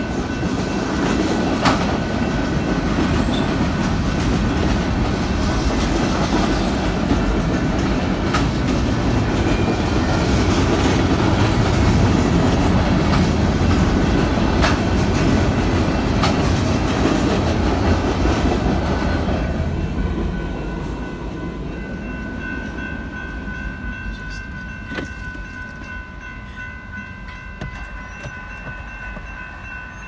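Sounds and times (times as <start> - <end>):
crossing warning bell ringing: 0.0 - 16.2, 18.6 - 30.0
train wheels clattering on rails: 0.0 - 30.0.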